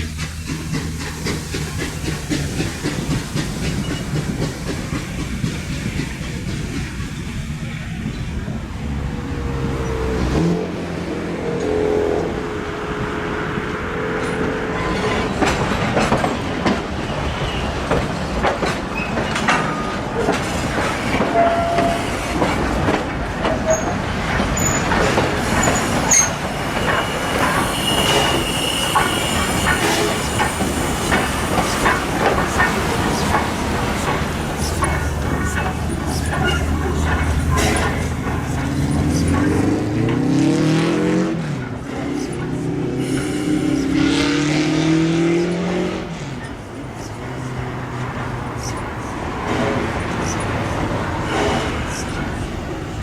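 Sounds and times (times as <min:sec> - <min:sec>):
wheels clicking over rail joints: 0:00.0 - 0:12.4, 0:13.0 - 0:43.9
train rumbling on rails: 0:00.0 - 0:53.0
wheel squeals: 0:18.9 - 0:20.6, 0:21.2 - 0:40.4.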